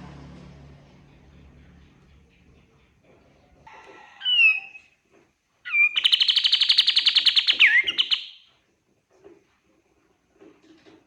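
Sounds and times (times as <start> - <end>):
songbird whistle and trill: 4.2 - 4.9, 5.7 - 8.5.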